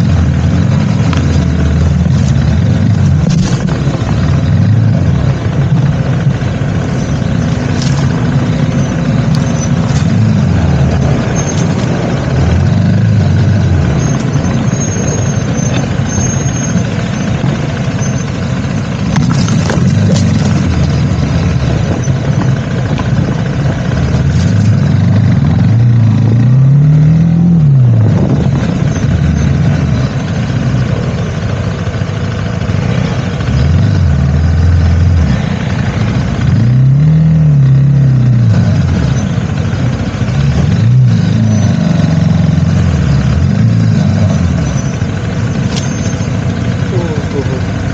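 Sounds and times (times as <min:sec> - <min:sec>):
vehicle engine running: 0:00.0 - 0:47.9
wind and road noise: 0:00.0 - 0:47.9.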